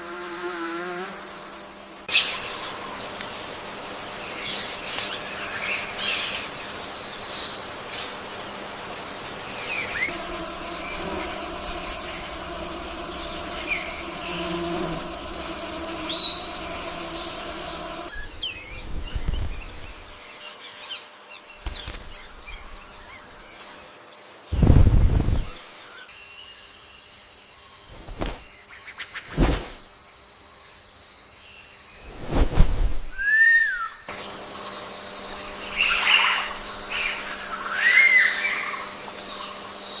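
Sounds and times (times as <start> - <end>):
high-pitched hum: 9.7 - 19.9
birds chirping and calling: 35.3 - 40.0.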